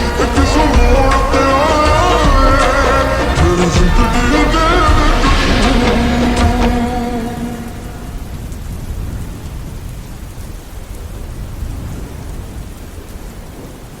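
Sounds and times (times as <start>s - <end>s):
slowed song held notes: 0.0s - 8.6s
steady rain hiss: 0.0s - 14.0s.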